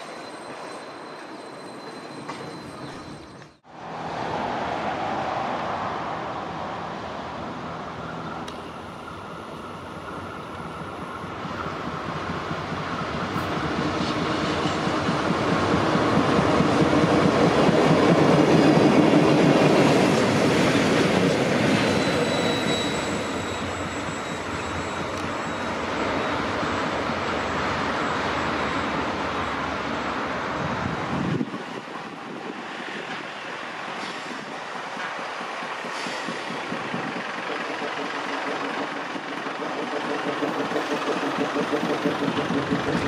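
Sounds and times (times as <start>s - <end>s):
diesel locomotive passing: 3.6s - 43.0s
wagons rolling on rails: 35.0s - 43.0s.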